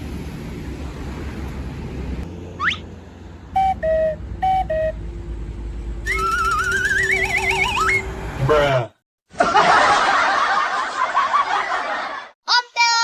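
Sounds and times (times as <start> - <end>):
low vehicle-like rumble: 0.0 - 8.8
wobbling rising tone: 2.5 - 2.9, 6.0 - 8.6
short rising whistle: 2.6 - 2.8, 6.0 - 8.2.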